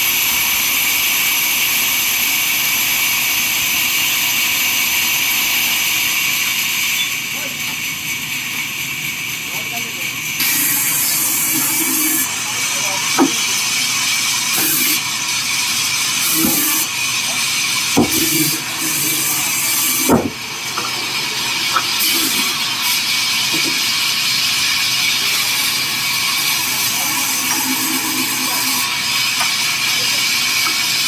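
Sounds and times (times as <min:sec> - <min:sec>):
sawmill saw cutting wood: 0:00.0 - 0:31.0
timber knocking: 0:13.1 - 0:13.5, 0:18.0 - 0:19.2, 0:19.9 - 0:20.9.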